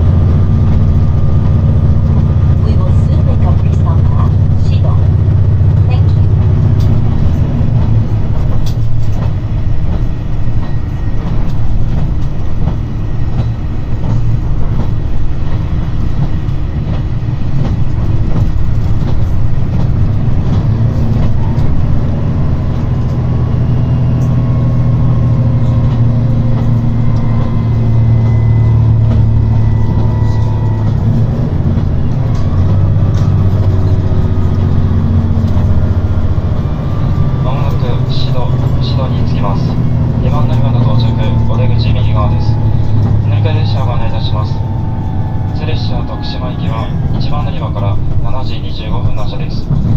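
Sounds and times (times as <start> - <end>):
diesel railcar engine drone: 0.0 - 49.9
whine rising in pitch: 21.4 - 49.6.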